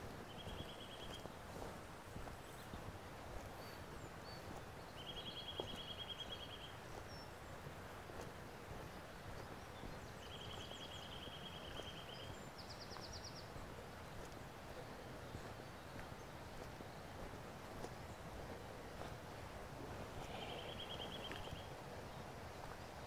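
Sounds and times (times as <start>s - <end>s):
outdoor background hiss: 0.0s - 23.0s
songbird trilling: 20.3s - 21.7s.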